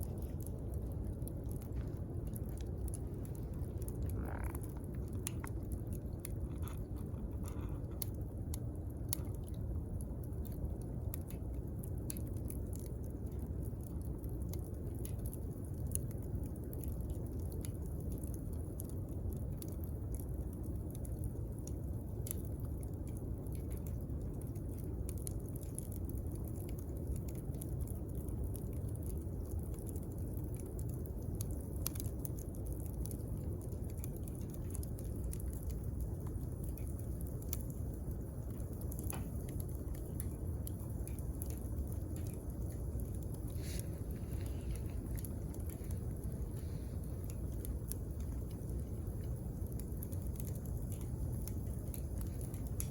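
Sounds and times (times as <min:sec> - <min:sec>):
bonfire crackling and popping: 0:00.0 - 0:52.9.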